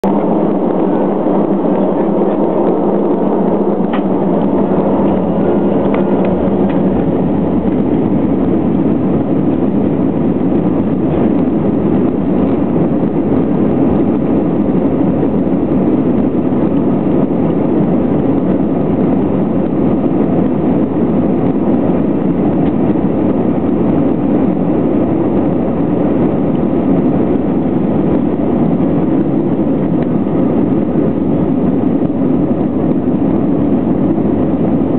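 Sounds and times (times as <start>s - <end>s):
faint tones: 0.0s - 9.2s
jet engines and airflow in cabin: 0.0s - 34.9s.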